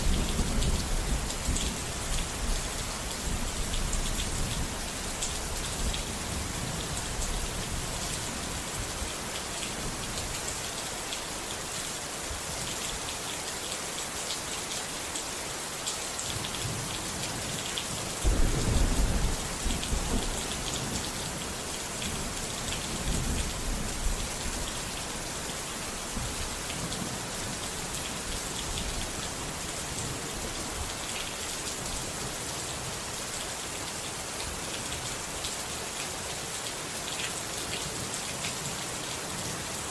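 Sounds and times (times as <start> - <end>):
heavy rain: 0.0 - 39.9
thunder rumbling: 18.2 - 22.4.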